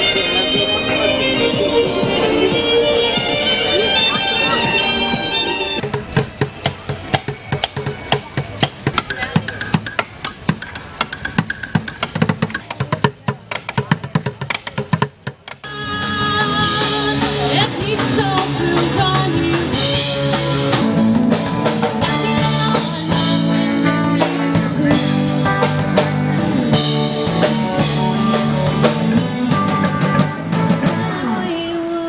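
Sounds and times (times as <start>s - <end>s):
steady drum beat: 0.0s - 31.1s
band music: 0.0s - 32.0s.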